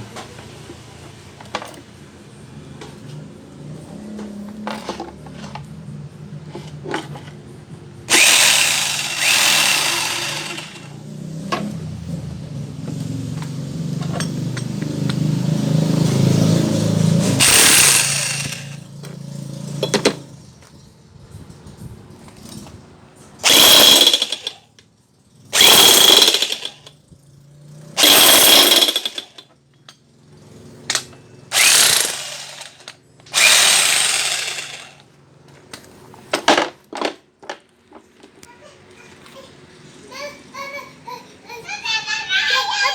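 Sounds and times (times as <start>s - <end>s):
jackhammer hammering: 8.1s - 11.7s, 17.1s - 20.2s, 23.4s - 24.6s, 25.5s - 26.9s, 28.0s - 29.4s, 31.5s - 35.1s
low motor hum: 17.3s - 19.1s.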